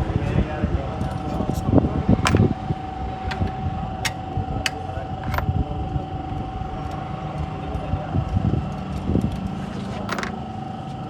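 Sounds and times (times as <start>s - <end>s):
car engine running: 2.2s - 10.7s
sharp clicks: 3.3s - 4.8s.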